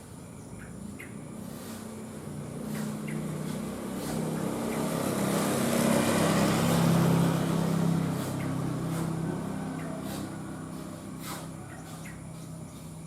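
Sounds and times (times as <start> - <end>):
faint bird chirps: 0.0 - 2.0, 8.2 - 13.0
vehicle engine passing by: 0.0 - 13.0.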